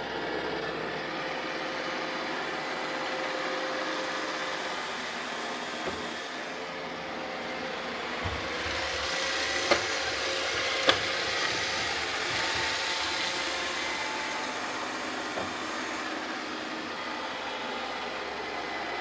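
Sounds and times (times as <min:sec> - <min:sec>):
robot vacuum whirring: 0:00.1 - 0:19.0.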